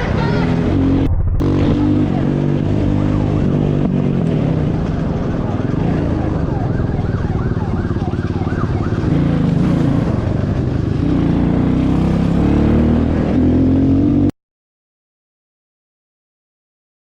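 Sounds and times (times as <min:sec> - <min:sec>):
motorcycle engine running: 0:00.5 - 0:12.8
police siren yelping: 0:05.6 - 0:09.3.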